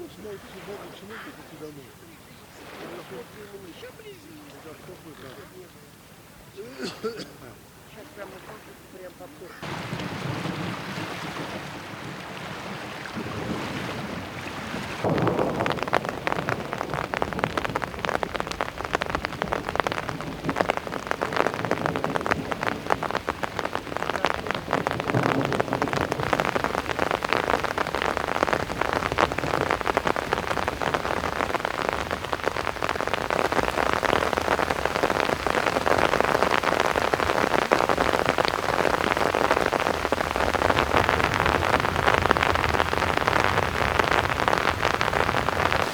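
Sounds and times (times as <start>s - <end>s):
rain falling: 0.0s - 45.9s.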